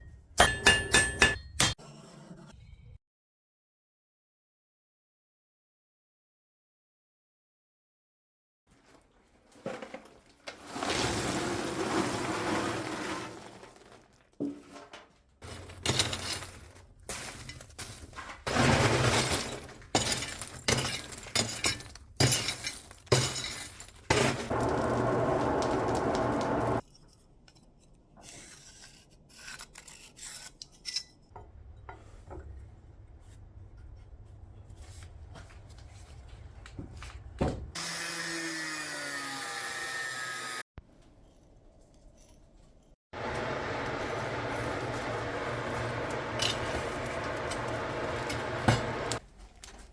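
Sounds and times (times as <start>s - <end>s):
metal and tools clattering: 8.8s - 26.8s, 44.3s - 49.9s
low hum: 43.2s - 49.2s.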